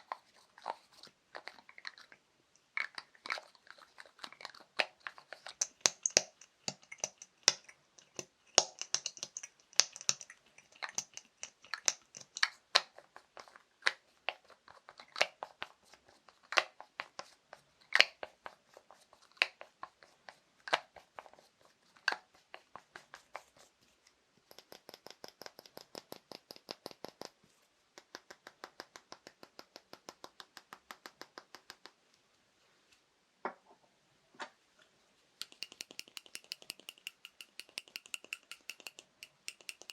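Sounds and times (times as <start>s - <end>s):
tapping on small objects: 4.3s - 12.9s, 24.5s - 27.4s, 28.0s - 32.0s, 35.4s - 39.9s.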